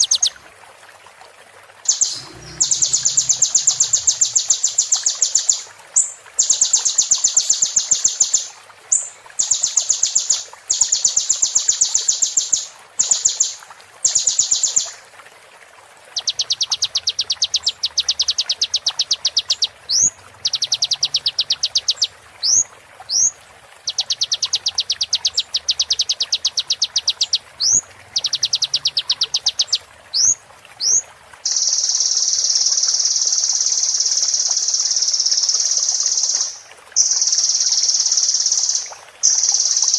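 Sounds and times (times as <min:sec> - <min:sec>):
sunbird buzzy trills: 0:01.9 - 0:08.4.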